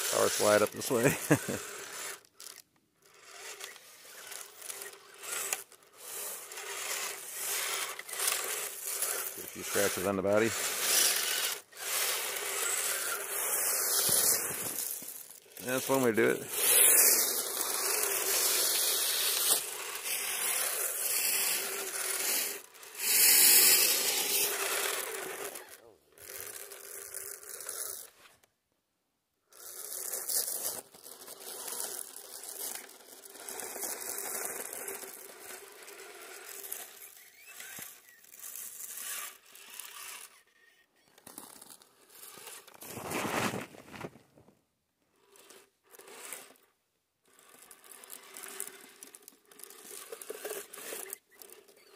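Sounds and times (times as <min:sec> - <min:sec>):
electric motor whine: 0:00.0 - 0:28.0
tyres crunching through snow: 0:42.8 - 0:44.5.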